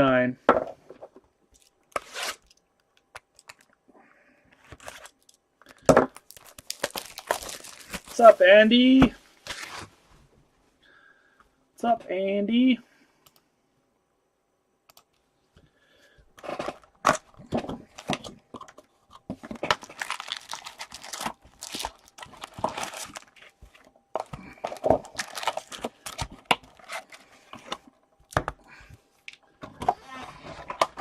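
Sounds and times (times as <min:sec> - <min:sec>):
wrappers tearing and crinkling: 0:01.6 - 0:02.6, 0:04.7 - 0:08.5, 0:19.5 - 0:23.7, 0:24.7 - 0:27.2.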